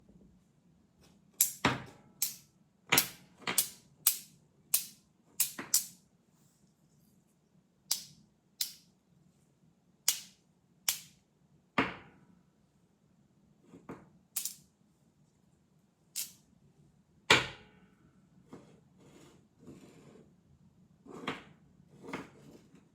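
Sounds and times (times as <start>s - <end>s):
magnets snapping together: 3.0s - 6.0s, 7.9s - 8.8s, 10.1s - 11.2s, 14.4s - 14.6s, 16.2s - 16.4s.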